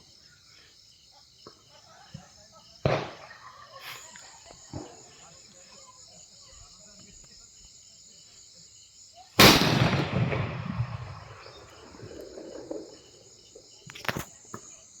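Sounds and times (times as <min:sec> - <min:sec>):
crickets chirping: 0:00.0 - 0:15.0
firecracker bang with echo: 0:02.8 - 0:03.3, 0:09.4 - 0:13.2
faint sharp cracks: 0:09.4 - 0:14.4.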